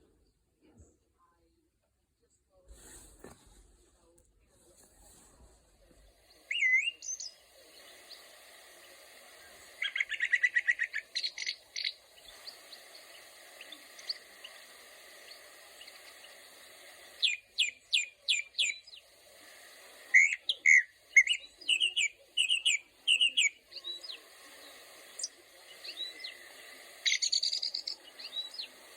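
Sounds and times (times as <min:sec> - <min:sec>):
bird fast trill: 0:06.5 - 0:07.4, 0:09.8 - 0:14.6, 0:20.1 - 0:24.2, 0:27.0 - 0:28.7
bird whistled notes: 0:06.5 - 0:07.4, 0:09.8 - 0:14.3, 0:17.2 - 0:19.0, 0:20.1 - 0:24.2, 0:27.0 - 0:28.7
bird sharp chips: 0:06.5 - 0:16.5, 0:20.1 - 0:28.9.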